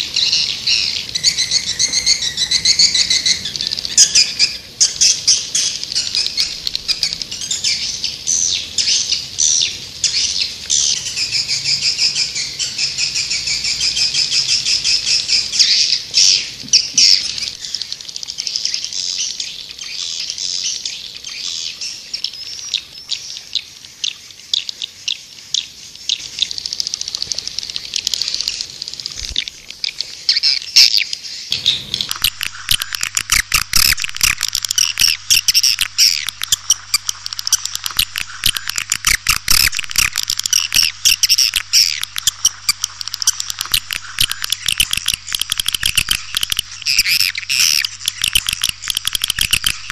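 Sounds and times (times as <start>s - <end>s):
low hum: 31.5s - 49.9s
swiftlets twittering: 31.5s - 49.9s.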